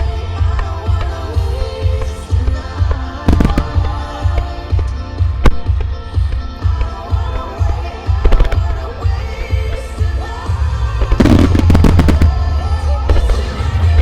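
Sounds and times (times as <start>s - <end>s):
music with steady beat: 0.0s - 14.0s
fireworks bursting: 2.9s - 7.0s, 11.0s - 14.0s.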